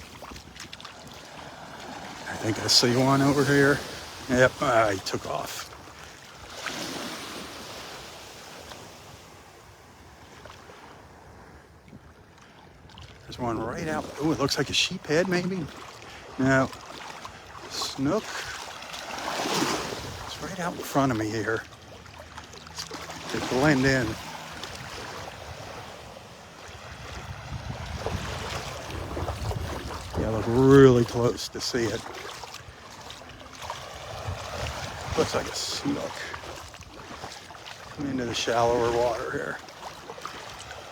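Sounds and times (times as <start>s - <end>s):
small waves washing in surf: 0.0s - 40.9s
wind buffeting microphone: 26.7s - 31.2s, 33.9s - 36.0s.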